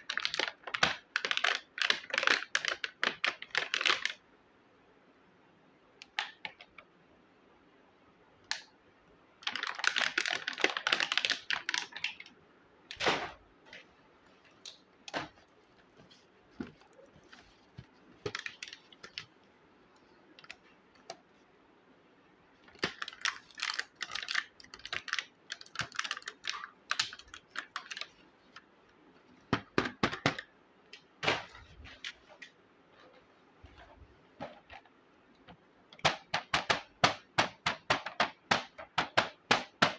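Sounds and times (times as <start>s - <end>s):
rustling: 13.6s - 20.8s.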